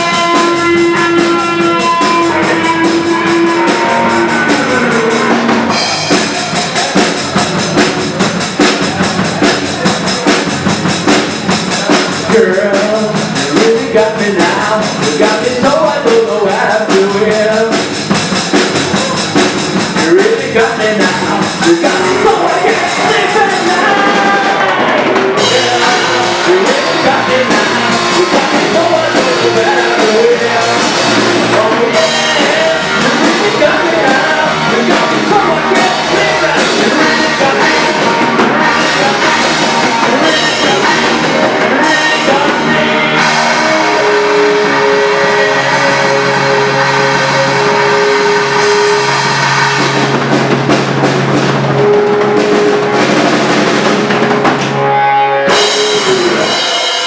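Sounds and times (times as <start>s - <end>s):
person singing: 0.0s - 18.0s, 18.6s - 50.2s, 54.5s - 57.0s
rock band playing: 0.0s - 57.0s.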